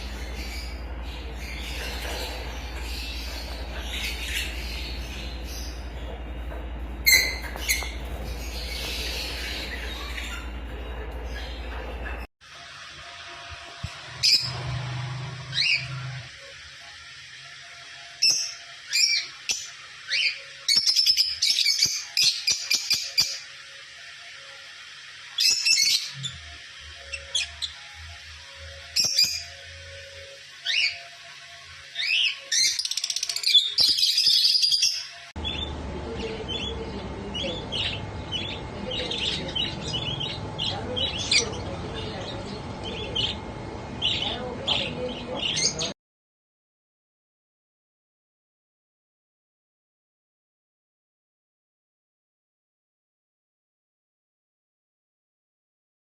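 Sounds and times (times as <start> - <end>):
birds chirping and squawking: 0.0 - 12.8, 14.0 - 46.0.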